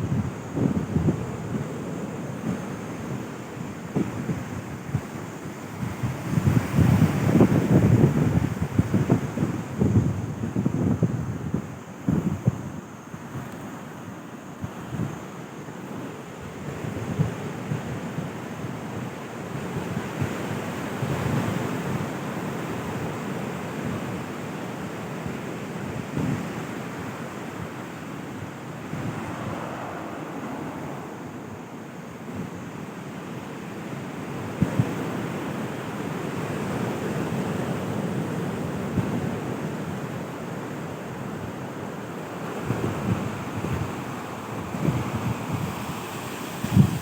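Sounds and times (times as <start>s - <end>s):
wind buffeting microphone: 0.0s - 13.8s, 15.9s - 23.1s, 25.2s - 40.2s, 41.0s - 47.0s
sea waves washing onto beach: 13.2s - 47.0s.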